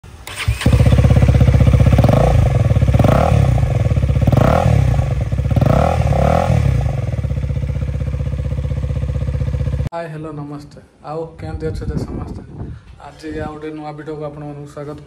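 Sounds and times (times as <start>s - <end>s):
motorcycle engine revving and idling: 0.3s - 9.9s.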